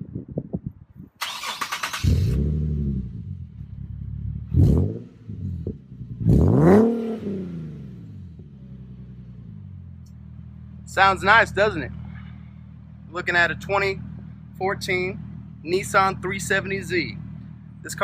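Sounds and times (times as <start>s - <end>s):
car engine starting and revving: 1.2s - 13.0s.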